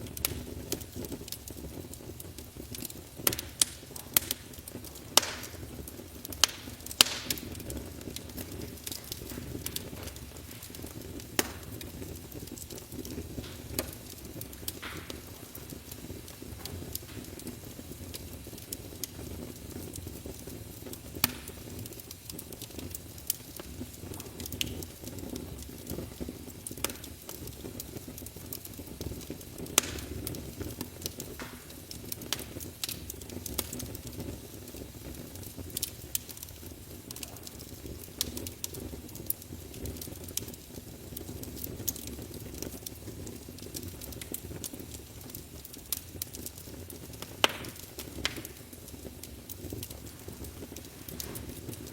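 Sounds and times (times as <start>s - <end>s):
low rumble of flames: 0.0s - 51.9s
wood crackling and popping: 0.0s - 51.9s.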